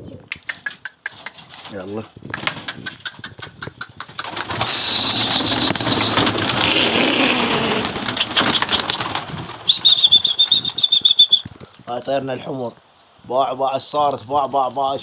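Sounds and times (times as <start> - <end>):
pigeon wings flapping: 0.5 - 11.5
rapid high chirping trill: 8.2 - 11.5.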